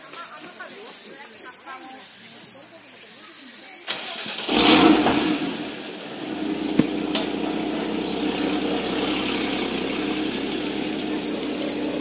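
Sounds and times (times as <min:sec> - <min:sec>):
car engine starting and idling: 0:03.9 - 0:12.0.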